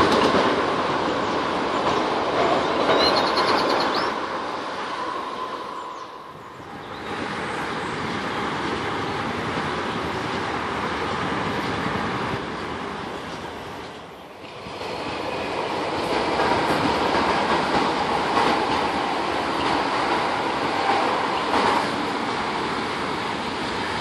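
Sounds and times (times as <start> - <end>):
thin train whine: 0.0 - 24.0
train wheels rushing on rails: 0.0 - 24.0.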